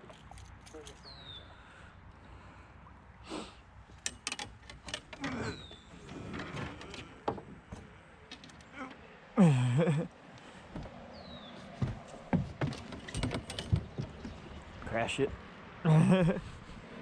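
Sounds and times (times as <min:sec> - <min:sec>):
canoe and gear knocking: 0:11.7 - 0:14.9.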